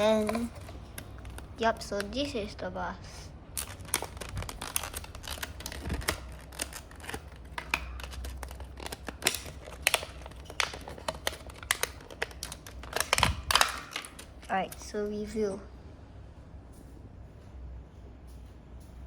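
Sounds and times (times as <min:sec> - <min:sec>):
plastic packaging clicks: 0:00.0 - 0:02.5, 0:03.5 - 0:15.0
packaging rustling: 0:00.0 - 0:02.6, 0:03.5 - 0:15.0.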